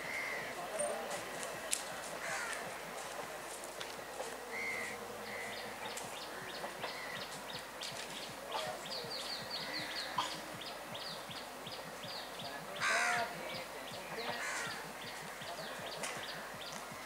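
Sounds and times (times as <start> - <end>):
birds chirping: 0.0 - 17.0
harsh loud bird call: 12.8 - 13.4.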